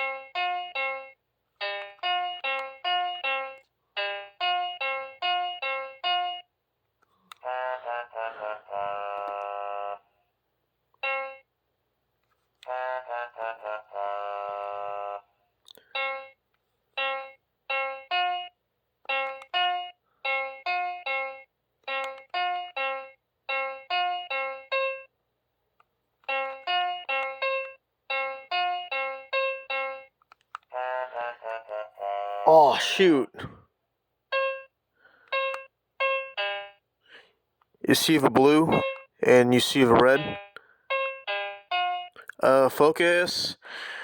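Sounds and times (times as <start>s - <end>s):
electronic game piano tones: 17.0s - 25.1s, 34.3s - 34.7s, 35.3s - 36.8s, 38.2s - 42.2s.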